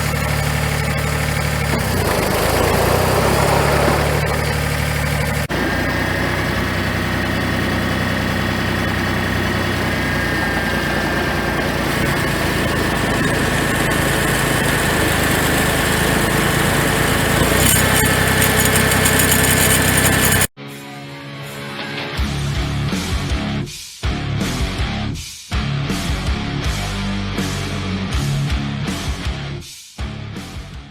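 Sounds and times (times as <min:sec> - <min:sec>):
tractor diesel engine running: 0:00.0 - 0:20.5
thin steady whine: 0:03.7 - 0:20.5.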